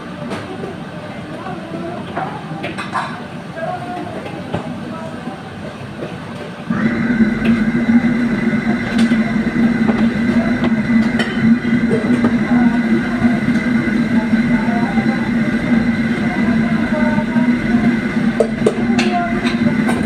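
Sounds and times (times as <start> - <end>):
motor humming with whine: 6.6 - 20.0.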